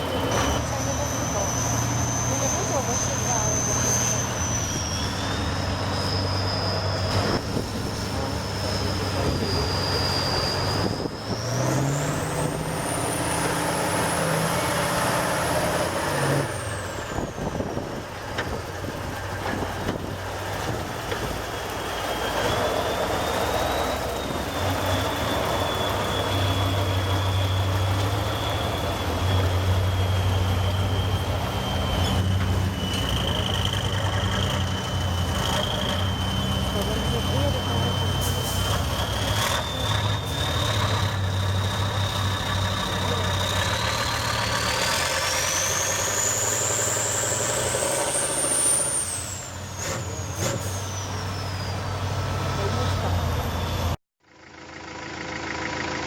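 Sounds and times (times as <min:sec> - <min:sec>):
diesel truck engine revving: 0:00.0 - 0:56.0.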